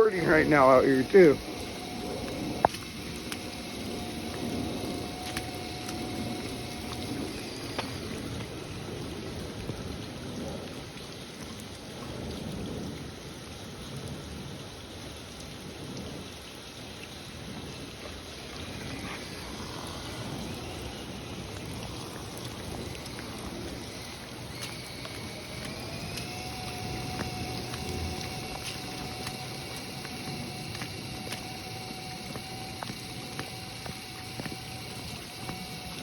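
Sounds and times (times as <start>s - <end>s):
small electric motor whine: 0.0s - 9.4s, 17.8s - 36.0s
rain on a phone: 0.0s - 36.0s
low rumble: 17.4s - 32.9s.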